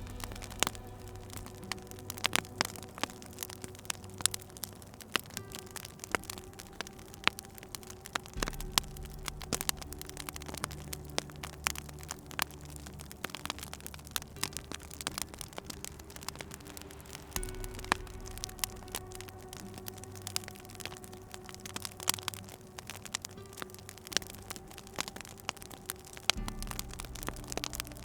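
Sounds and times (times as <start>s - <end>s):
soft low tones: 0.0s - 28.0s
wood fire crackling and popping: 0.0s - 28.0s.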